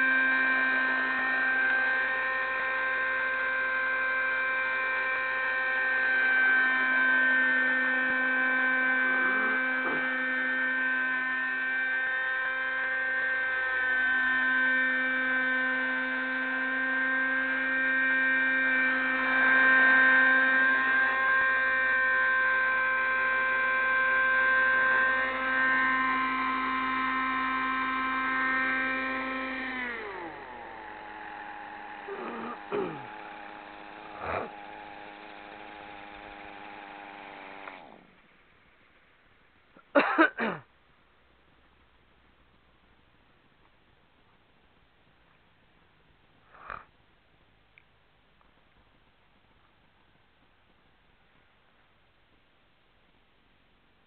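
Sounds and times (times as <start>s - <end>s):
model helicopter engine whining: 0.0s - 38.4s.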